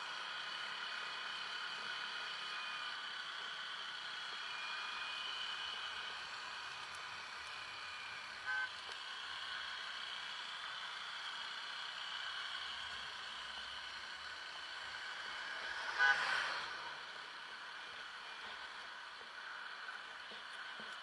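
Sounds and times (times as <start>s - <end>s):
road traffic: 0.0s - 21.0s
vehicle horn beep: 8.4s - 8.8s, 15.7s - 16.7s.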